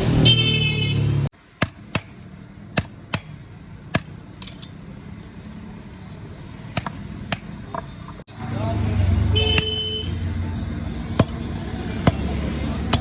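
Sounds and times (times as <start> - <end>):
street traffic noise: 0.0 - 13.0
hammer striking metal: 1.5 - 4.8, 6.7 - 8.2, 11.2 - 13.0.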